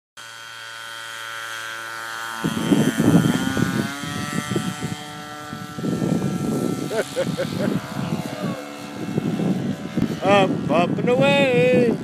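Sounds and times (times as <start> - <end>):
propeller aircraft engine whine: 0.2 - 12.0.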